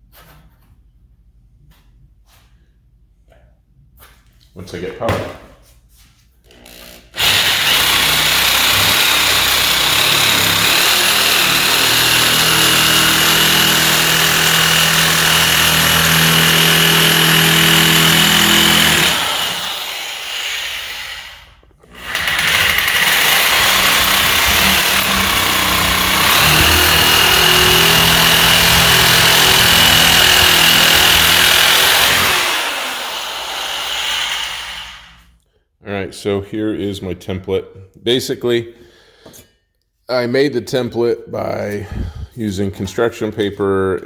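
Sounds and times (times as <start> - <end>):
power tool cutting sheet steel: 6.8 - 35.2.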